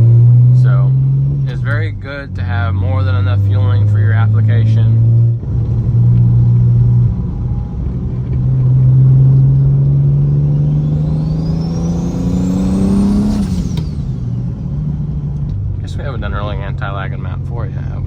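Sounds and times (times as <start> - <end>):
car exhaust accelerating: 0.0 - 18.0.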